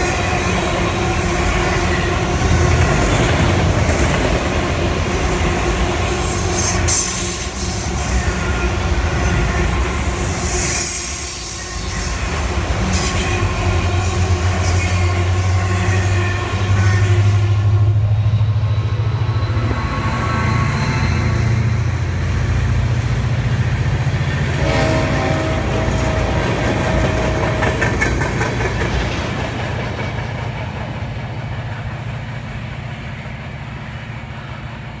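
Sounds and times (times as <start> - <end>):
freight train wheels clattering: 0.0 - 15.4, 23.3 - 35.0.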